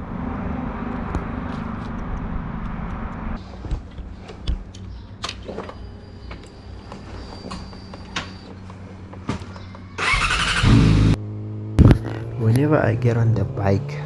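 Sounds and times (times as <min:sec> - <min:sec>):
motorcycle engine running: 0:00.0 - 0:01.2, 0:10.0 - 0:14.0.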